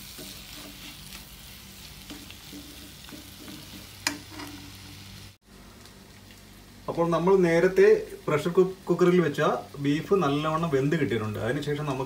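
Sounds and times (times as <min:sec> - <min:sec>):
metal spoon stirring and scraping: 0:00.0 - 0:01.3, 0:01.9 - 0:05.0
food sizzling in a pan: 0:00.0 - 0:12.0.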